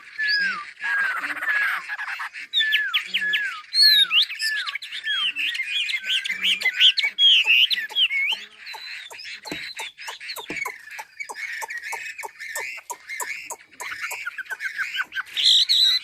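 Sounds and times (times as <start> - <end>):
bird singing whistled phrases: 0.0 - 1.8, 2.6 - 16.0
quick sharp bird clicks: 6.6 - 15.2.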